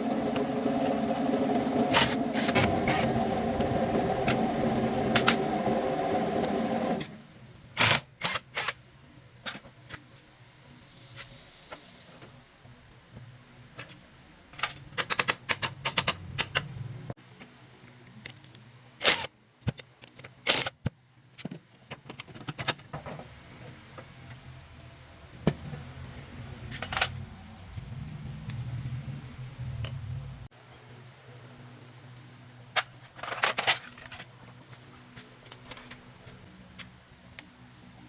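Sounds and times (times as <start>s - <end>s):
low hum: 24.1s - 30.5s.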